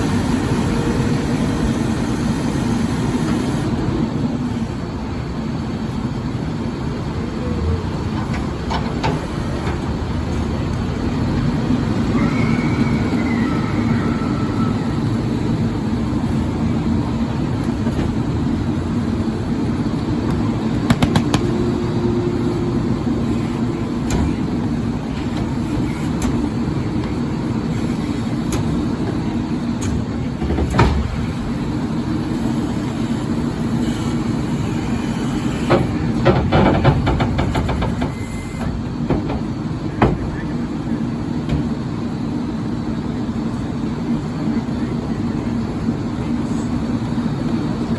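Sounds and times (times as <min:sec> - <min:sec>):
garbage truck running: 0:00.0 - 0:47.9
brief high squeal: 0:12.1 - 0:15.0.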